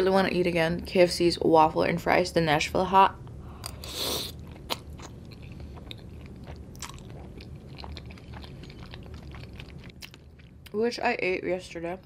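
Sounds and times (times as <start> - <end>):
chewing: 3.6 - 10.7.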